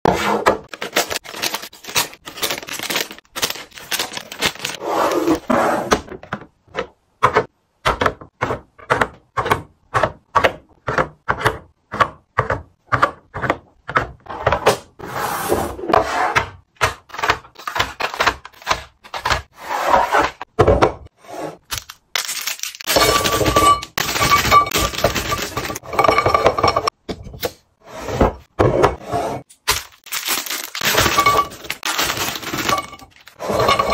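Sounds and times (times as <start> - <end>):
bottles and jars clinking: 22.2 - 27.4, 29.5 - 33.9.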